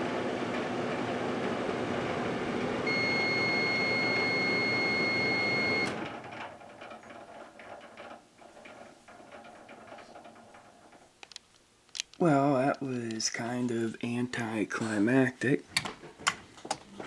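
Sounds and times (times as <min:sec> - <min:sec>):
microwave oven humming: 0:00.0 - 0:07.8
microwave long beep: 0:02.4 - 0:06.1.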